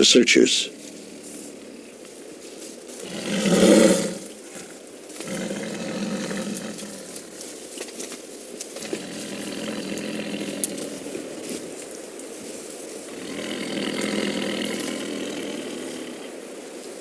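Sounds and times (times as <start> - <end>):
tiger growling: 0.0 - 2.0, 2.9 - 16.8
tiger roaring: 2.9 - 7.4, 8.8 - 11.8, 13.0 - 16.5.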